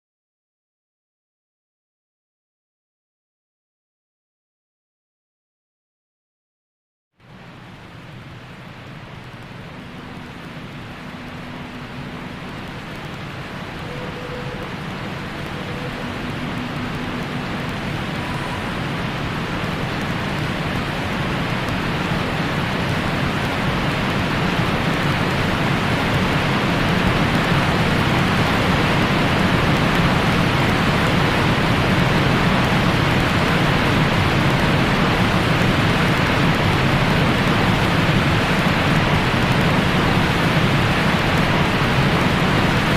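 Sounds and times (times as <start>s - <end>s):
steady white noise hiss: 7.2s - 42.9s.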